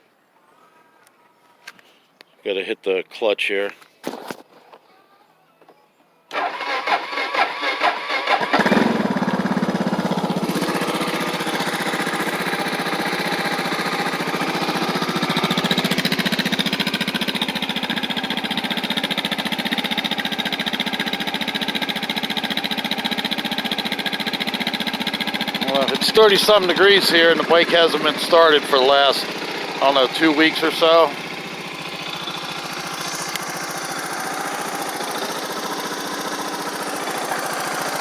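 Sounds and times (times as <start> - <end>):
electric starter cranking: 6.3 - 18.9, 23.9 - 38.0
motorcycle engine idling: 7.3 - 38.0.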